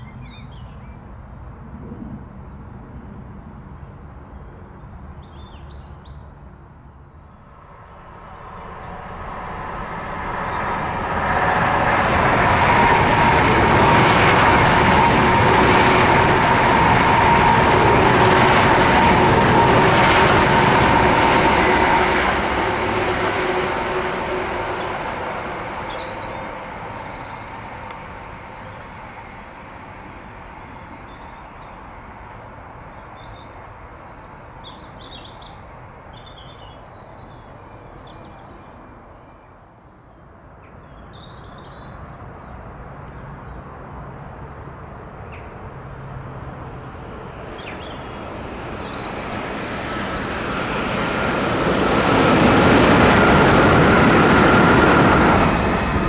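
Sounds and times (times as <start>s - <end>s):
high-speed train rushing past: 1.5s - 4.2s, 4.8s - 56.0s
birds chirping: 3.5s - 13.0s.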